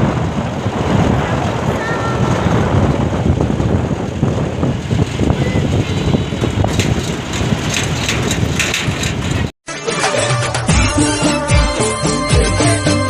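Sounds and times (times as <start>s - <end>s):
vehicle engine and road noise: 0.0s - 9.5s
light rattling: 4.7s - 9.5s.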